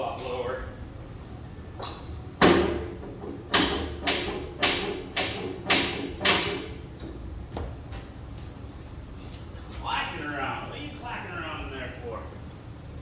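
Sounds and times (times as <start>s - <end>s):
sharp knocks: 2.4s - 6.8s.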